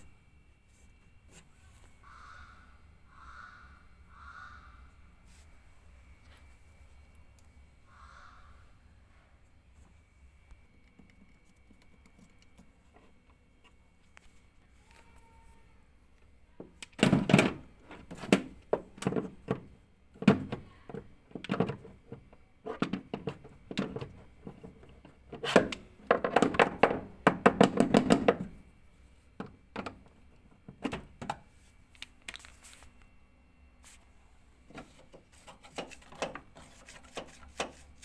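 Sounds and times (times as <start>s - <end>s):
tools knocking and rattling: 17.0s - 28.6s.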